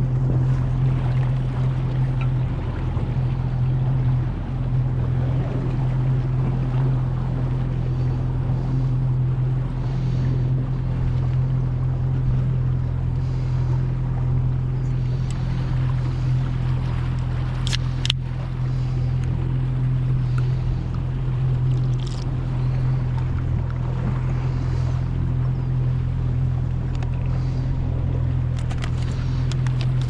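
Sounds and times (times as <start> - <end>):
boat motor running: 0.0 - 30.0
water noise: 0.0 - 30.0.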